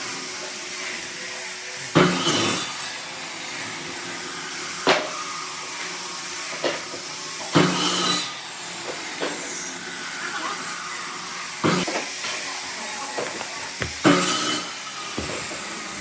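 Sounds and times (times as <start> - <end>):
workshop machine hissing: 0.0 - 16.0.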